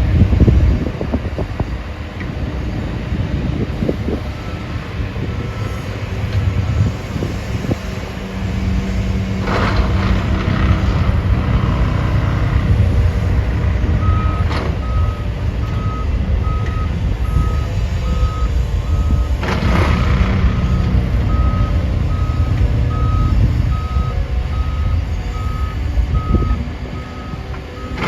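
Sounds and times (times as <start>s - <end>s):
low rumble of engines: 0.0s - 28.0s
backup alarm beeping: 14.0s - 19.3s, 20.6s - 28.0s.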